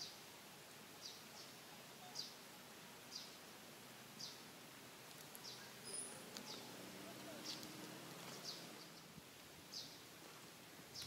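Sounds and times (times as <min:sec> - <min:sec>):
faint outdoor background noise: 0:00.0 - 0:11.0
bird chirping: 0:05.4 - 0:09.1.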